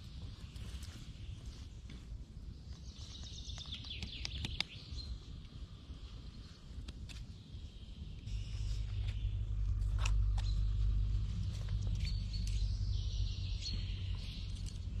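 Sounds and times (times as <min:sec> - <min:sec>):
small bird chirping: 0:02.7 - 0:05.3, 0:07.3 - 0:15.0.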